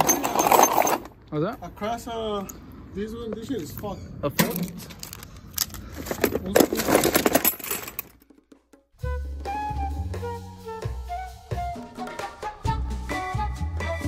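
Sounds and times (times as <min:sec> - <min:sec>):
background music with bass line: 0:09.0 - 0:14.0.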